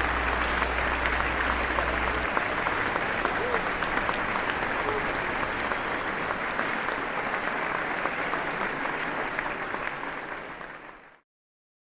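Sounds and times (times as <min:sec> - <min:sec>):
audience applause: 0:00.0 - 0:11.2.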